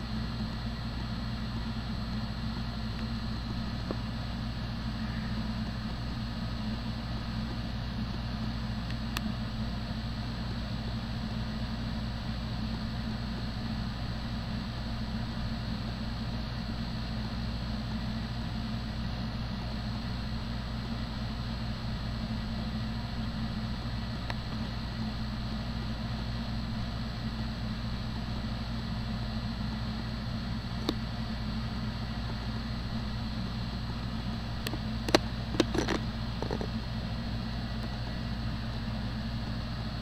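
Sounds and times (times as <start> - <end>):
engine idling hum: 0.0 - 40.0
sharp clicks and knocks: 34.6 - 36.7.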